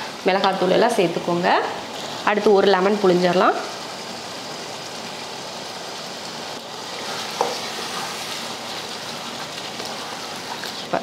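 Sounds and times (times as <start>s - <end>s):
food sizzling in a pot: 0.0s - 11.0s
spatula stirring: 6.8s - 10.9s.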